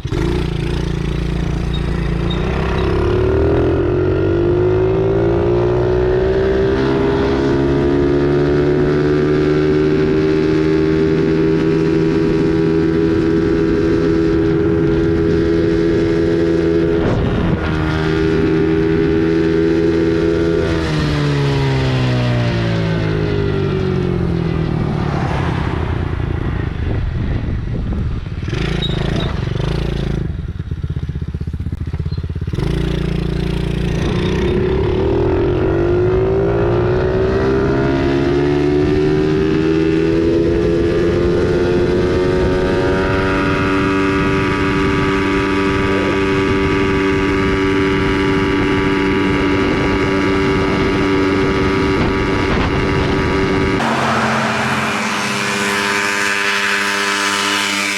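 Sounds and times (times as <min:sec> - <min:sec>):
pit bike engine: 0:00.0 - 0:27.0, 0:53.7 - 0:57.9.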